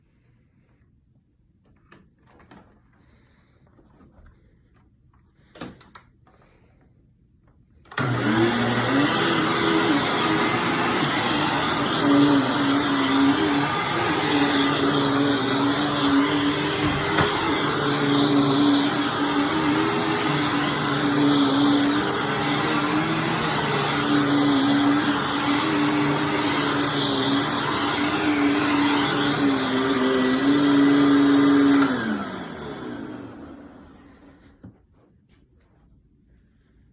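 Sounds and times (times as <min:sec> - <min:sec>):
vacuum cleaner motor whine: 0:07.9 - 0:34.7.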